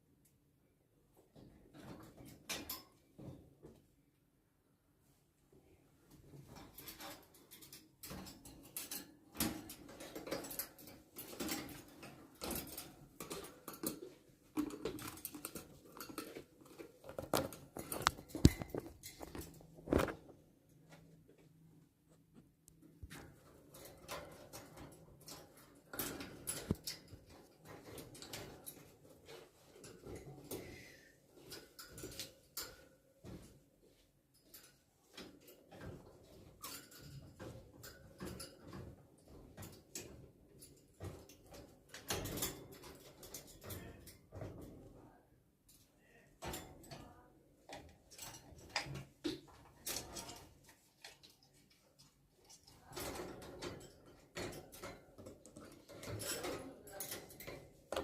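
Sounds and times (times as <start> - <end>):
pets tapping and scuffling: 6.6 - 21.0.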